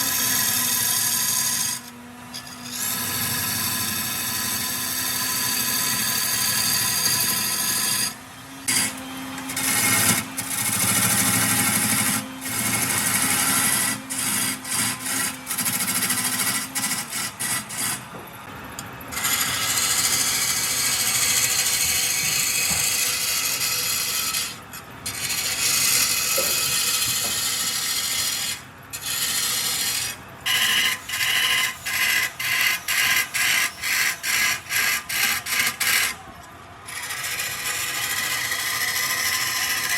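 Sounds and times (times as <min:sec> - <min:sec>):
wood lathe spinning: 0:00.0 - 0:18.2, 0:19.1 - 0:39.9
tool scraping turning wood: 0:00.0 - 0:18.3, 0:19.1 - 0:39.9.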